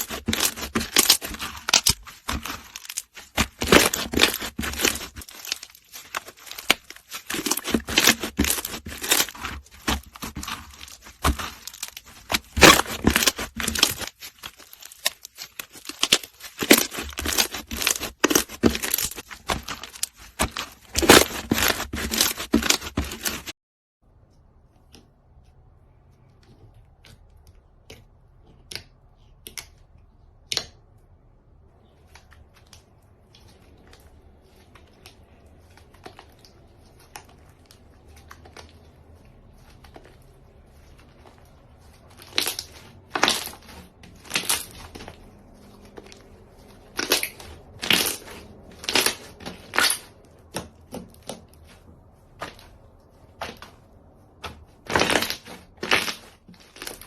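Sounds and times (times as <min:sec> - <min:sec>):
slime popping and crackling: 0:00.0 - 0:23.5, 0:41.9 - 0:51.4, 0:54.4 - 0:57.0.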